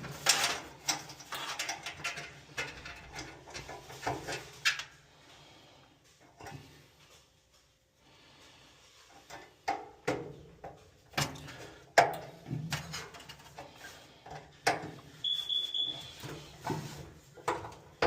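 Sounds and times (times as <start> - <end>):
short electronic beep: 15.2 - 16.2.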